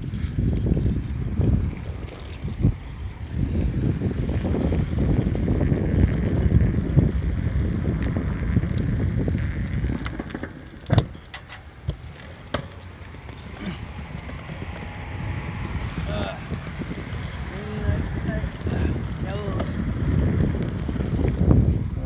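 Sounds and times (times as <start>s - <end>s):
vehicle engine and road rumble: 0.0s - 22.0s.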